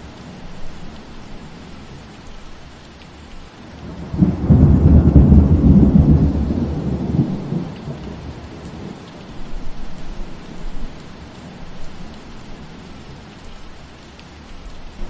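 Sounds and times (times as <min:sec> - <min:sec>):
steady rain: 0:00.0 - 0:15.0
thunder rumbling: 0:03.8 - 0:09.2.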